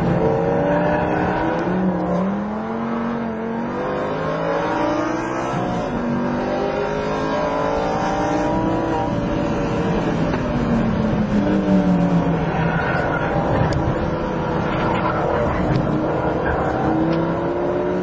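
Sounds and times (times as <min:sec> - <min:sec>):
sports car engine: 0:00.0 - 0:18.0
tyre and road noise: 0:05.0 - 0:18.0.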